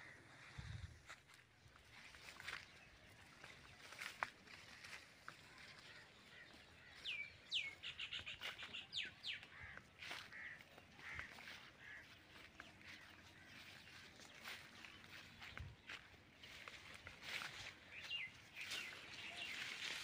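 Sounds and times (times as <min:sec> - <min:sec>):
faint footsteps on a dirt path: 0:00.0 - 0:20.0
bird calling: 0:05.3 - 0:20.0.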